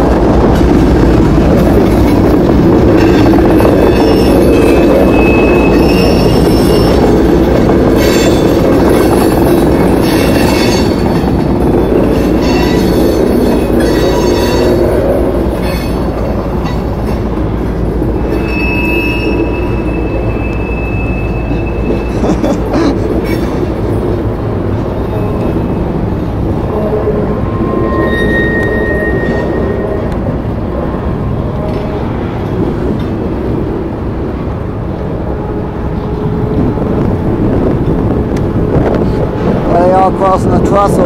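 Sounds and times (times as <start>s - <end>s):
freight train rumbling past: 0.0s - 41.0s
high wheel squeal: 3.0s - 7.2s, 18.2s - 22.2s, 27.0s - 30.2s.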